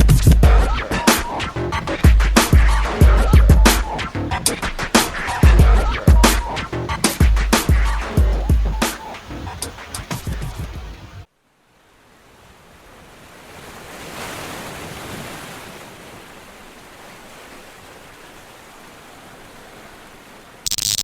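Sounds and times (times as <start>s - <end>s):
background music: 0.0s - 11.2s
steady rushing noise: 0.0s - 11.2s.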